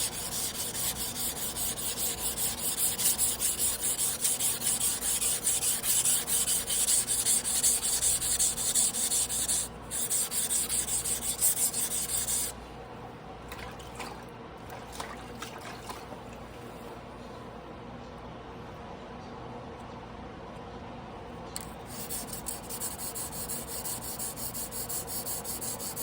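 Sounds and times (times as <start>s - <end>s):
knife scraping on whetstone: 0.0s - 12.5s.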